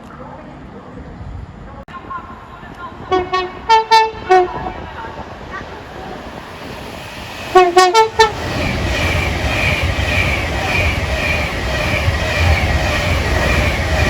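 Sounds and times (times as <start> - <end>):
train rumbling past: 0.5 - 14.0
train two-tone horn: 3.1 - 4.8, 7.6 - 8.4.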